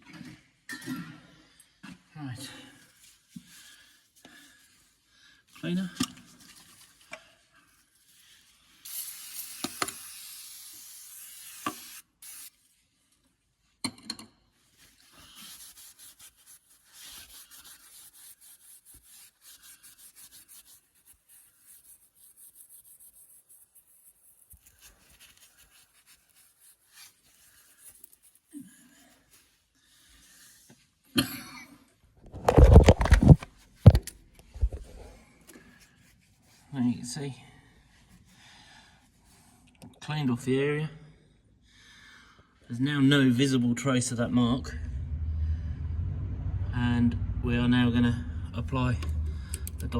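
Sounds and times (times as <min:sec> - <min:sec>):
aerosol spraying: 0:08.8 - 0:12.6.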